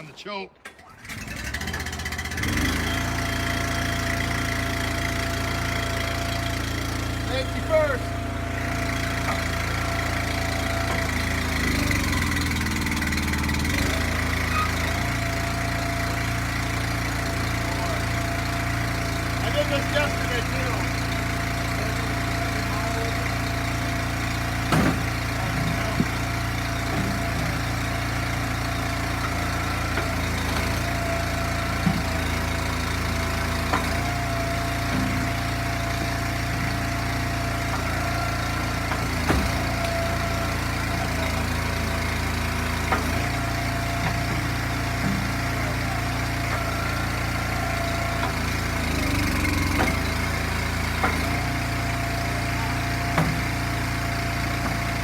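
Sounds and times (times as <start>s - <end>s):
gas engine running: 0.0s - 55.0s.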